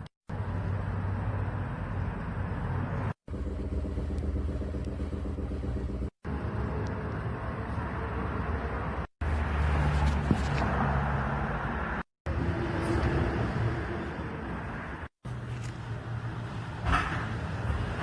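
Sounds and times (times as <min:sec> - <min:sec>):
car engine idling: 0:03.3 - 0:07.2.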